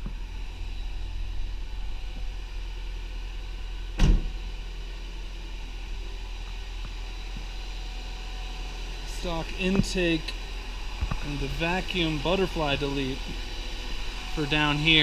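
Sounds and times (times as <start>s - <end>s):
car engine idling: 0.0s - 15.0s
sharp thump: 4.0s - 4.4s.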